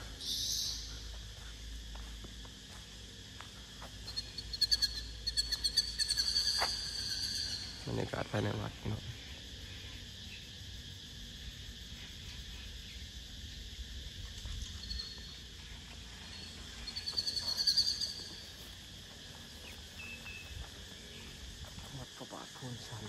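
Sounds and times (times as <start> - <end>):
birds chirping: 0.0 - 1.7, 4.0 - 10.5, 11.9 - 21.8
faint insect buzz: 0.0 - 23.0.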